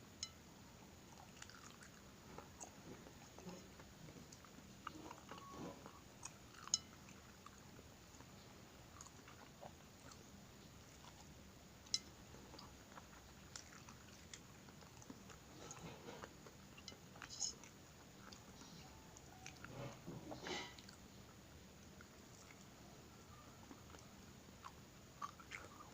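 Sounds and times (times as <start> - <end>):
crunchy chewing: 1.1 - 25.9.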